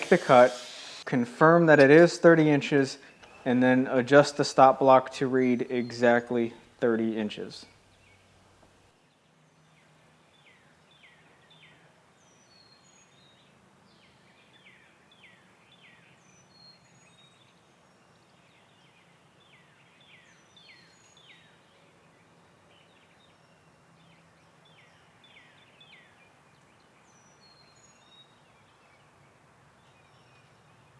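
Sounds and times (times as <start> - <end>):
birds chirping: 0.0 - 1.1.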